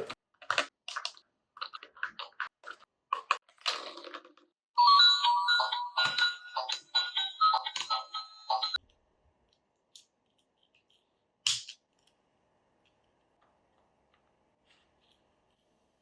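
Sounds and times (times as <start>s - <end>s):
beeping electronic melody: 4.8s - 8.8s.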